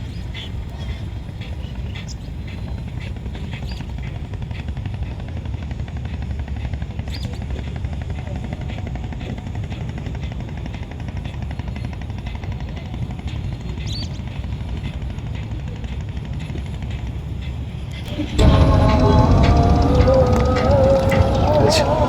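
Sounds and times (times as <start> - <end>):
pulsing engine rumble: 18.1 - 22.0.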